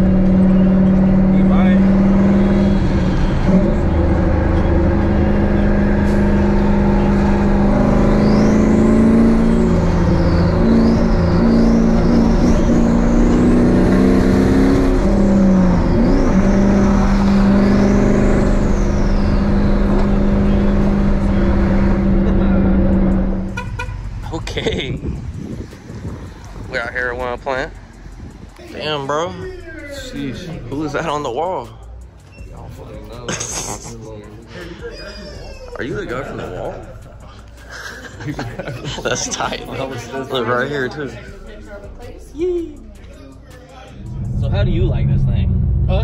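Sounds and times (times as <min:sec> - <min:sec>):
car engine running: 0:00.0 - 0:33.2, 0:43.9 - 0:46.0.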